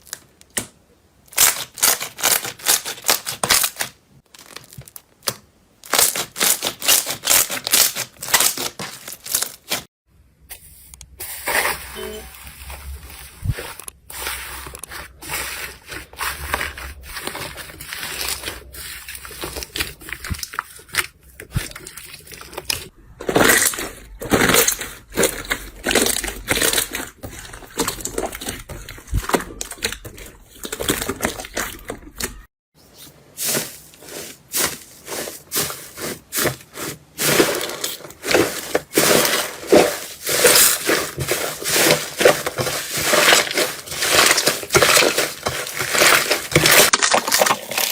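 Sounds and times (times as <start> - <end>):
slime crackling and popping: 37.7 - 47.9.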